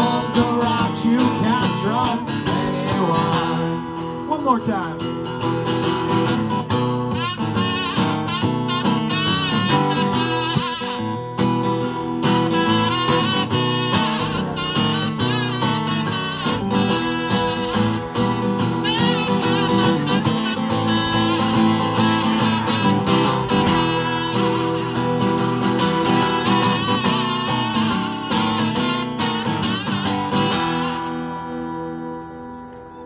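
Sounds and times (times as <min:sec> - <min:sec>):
strummed acoustic guitar: 0:00.0 - 0:33.0
wavering lead melody: 0:07.1 - 0:32.8.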